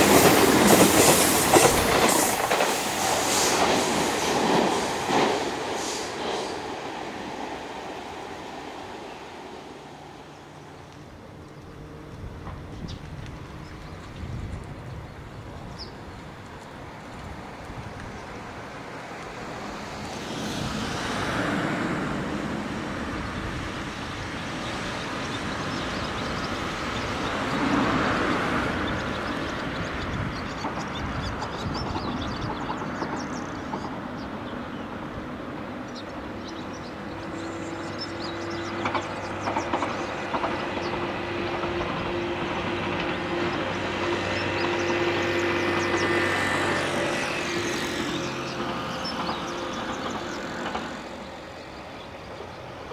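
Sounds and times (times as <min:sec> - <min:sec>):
outdoor noise: 0:00.0 - 0:52.9
electric train running: 0:36.2 - 0:52.9.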